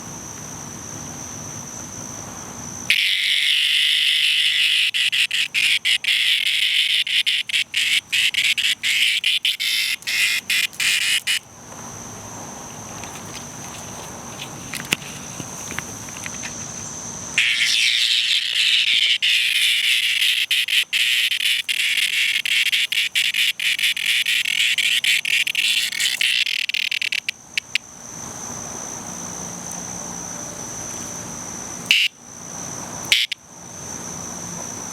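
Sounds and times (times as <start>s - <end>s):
cicada harsh buzzing: 0.0s - 34.9s.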